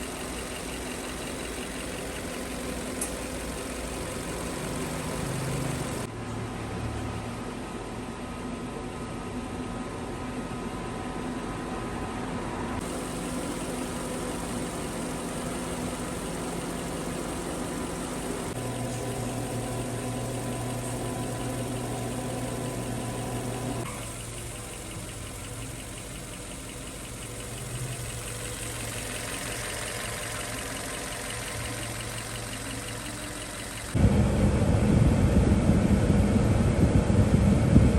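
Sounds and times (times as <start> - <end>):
loud rough running machine: 0.0 - 6.1, 12.8 - 37.9
machinery humming: 12.8 - 37.9.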